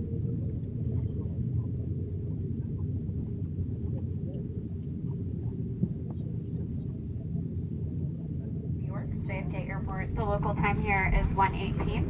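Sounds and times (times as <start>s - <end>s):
aircraft cabin rumble: 8.9s - 12.0s.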